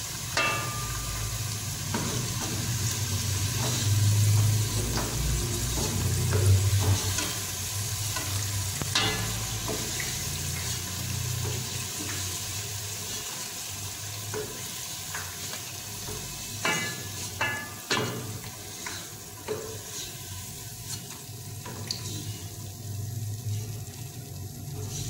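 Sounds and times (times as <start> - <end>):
eggplant frying in hot oil: 0.0 - 25.0
wooden spatula stirring: 16.2 - 22.6.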